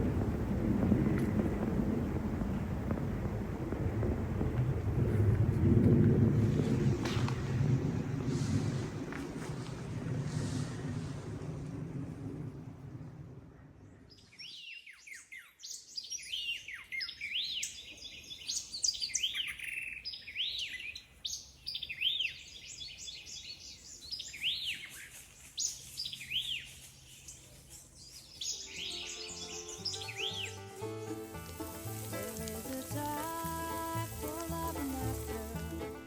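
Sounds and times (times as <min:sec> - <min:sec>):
songbirds chirping: 0:12.9 - 0:36.0.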